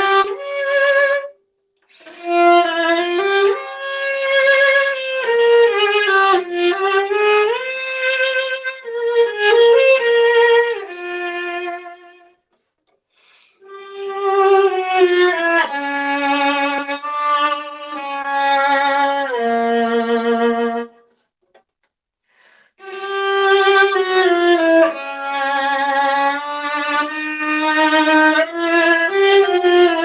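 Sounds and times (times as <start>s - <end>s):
solo viola bowed notes: 0.0s - 12.4s, 13.6s - 21.0s, 22.8s - 30.0s.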